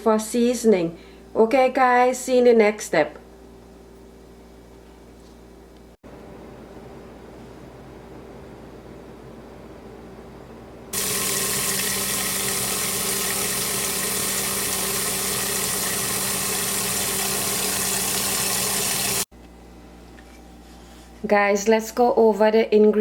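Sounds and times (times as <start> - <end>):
kitchen tap running: 11.0 - 19.3.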